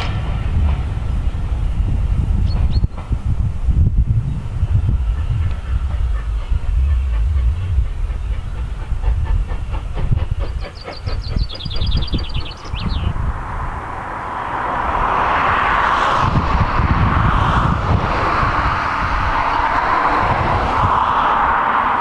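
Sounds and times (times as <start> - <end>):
train rumbling: 0.0 - 22.0
wheels clicking over rail joints: 4.7 - 13.8.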